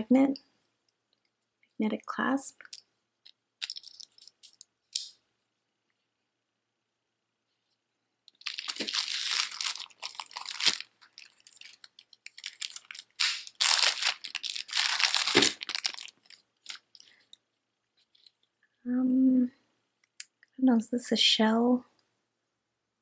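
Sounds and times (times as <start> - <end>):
jewelry crinkling and rustling: 2.6 - 5.2, 8.3 - 18.6.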